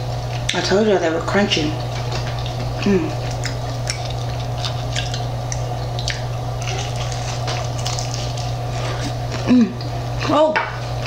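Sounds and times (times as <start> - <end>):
steady low hum: 0.0 - 11.0
chewing crispy food: 1.8 - 9.9
wet mouth sounds: 2.4 - 7.5.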